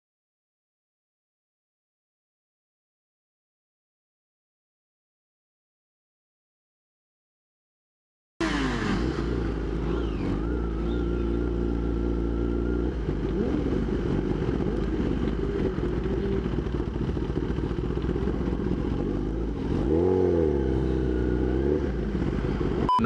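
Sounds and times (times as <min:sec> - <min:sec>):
motorcycle engine running: 0:08.4 - 0:22.9.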